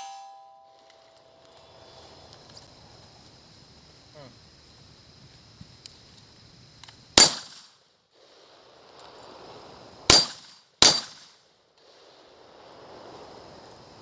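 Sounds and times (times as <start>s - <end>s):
gunshots: 7.2s - 8.4s, 10.1s - 12.2s.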